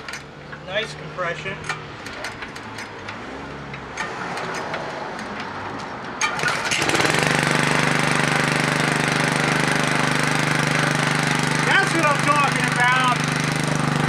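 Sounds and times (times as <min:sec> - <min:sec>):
pull-start cord: 0:06.2 - 0:08.0
small petrol engine running: 0:06.2 - 0:14.0.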